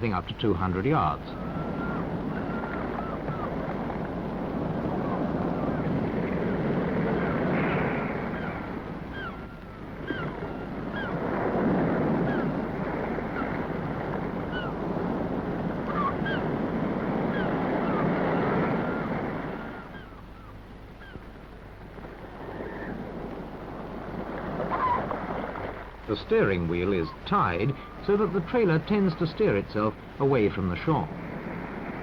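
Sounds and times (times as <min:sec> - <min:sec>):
sea water washing: 0:00.0 - 0:32.0
high bird calls: 0:00.1 - 0:03.9, 0:07.1 - 0:11.2, 0:14.3 - 0:14.8, 0:15.8 - 0:16.6, 0:17.2 - 0:21.4, 0:26.1 - 0:31.1.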